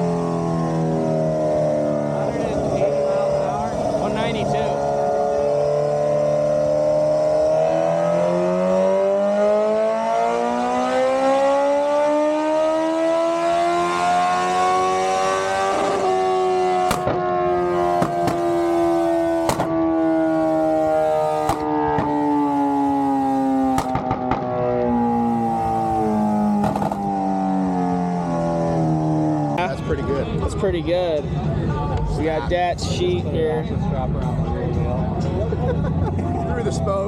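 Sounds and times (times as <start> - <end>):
motorcycle engine revving: 0.0 - 30.7
exhaust pops: 16.8 - 17.3, 18.0 - 18.8, 19.4 - 19.8, 23.7 - 24.6, 26.6 - 27.2.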